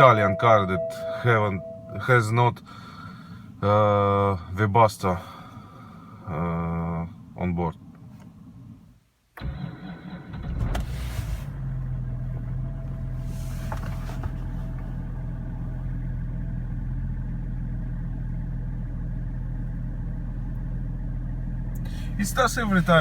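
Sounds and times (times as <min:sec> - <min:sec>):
diesel engine idling: 0:11.5 - 0:23.0.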